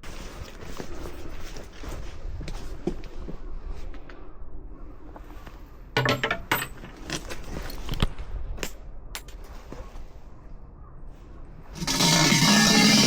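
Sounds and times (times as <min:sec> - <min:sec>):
sharp clinks and knocks: 0:06.0 - 0:07.3.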